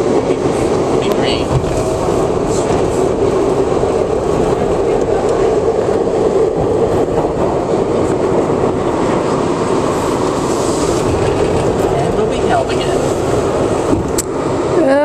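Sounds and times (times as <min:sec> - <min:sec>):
subway car running on track: 0:00.0 - 0:15.0.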